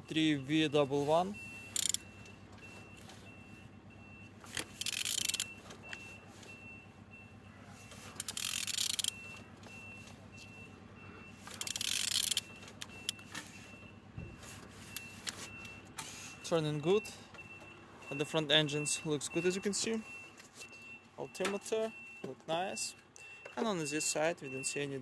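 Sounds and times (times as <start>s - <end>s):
diesel engine turning over: 1.4s - 16.4s.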